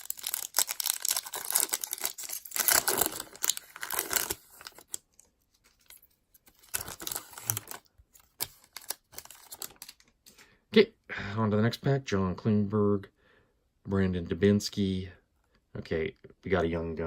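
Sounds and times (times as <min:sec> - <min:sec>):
foil wrapper tearing and crinkling: 0:00.0 - 0:05.0, 0:05.7 - 0:10.0.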